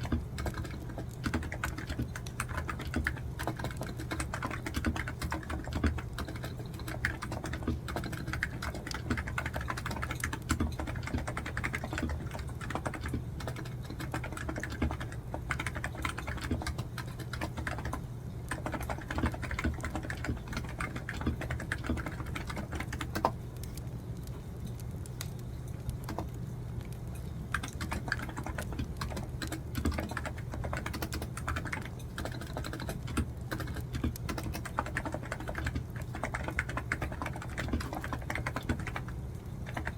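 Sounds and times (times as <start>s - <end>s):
typing on computer keyboard: 0.0s - 23.8s, 25.3s - 26.4s, 27.5s - 39.9s
crackling wood fire: 23.4s - 27.7s.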